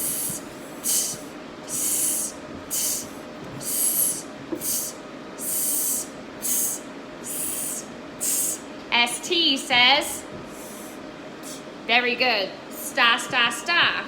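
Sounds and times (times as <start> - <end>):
person making hissing sounds: 0.0 - 8.7, 10.5 - 11.7.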